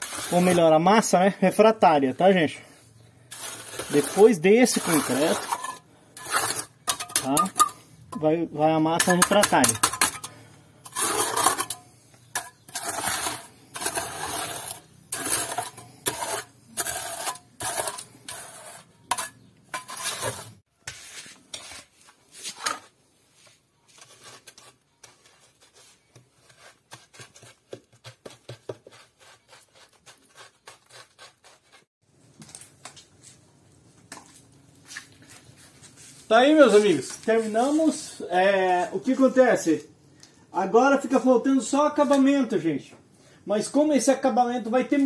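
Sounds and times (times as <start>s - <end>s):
trowel scraping wet mortar: 0.0s - 1.0s, 3.3s - 8.3s, 8.9s - 22.8s, 23.9s - 31.9s.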